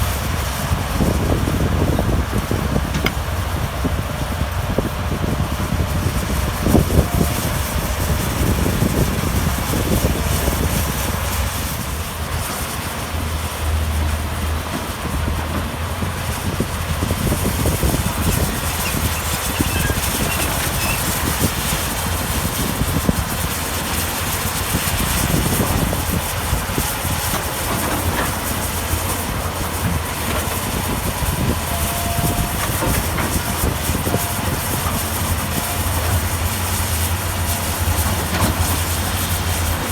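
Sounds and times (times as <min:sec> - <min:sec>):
diesel engines droning: 0:00.0 - 0:39.9
machinery rumbling clatter: 0:00.0 - 0:39.9.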